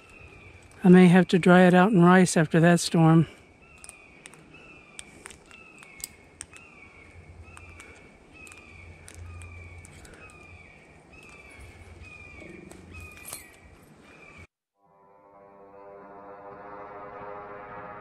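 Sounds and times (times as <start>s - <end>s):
sharp clicks: 3.7s - 10.6s.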